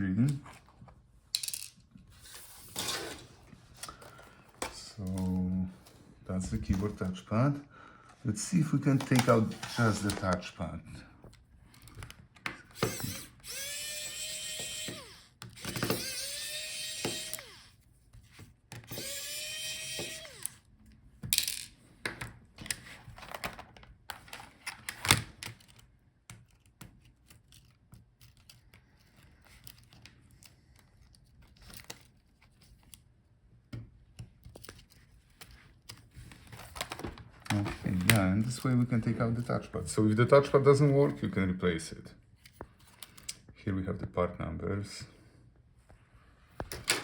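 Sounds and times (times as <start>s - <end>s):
electric screwdriver whirring: 12.7s - 17.8s, 18.8s - 20.7s.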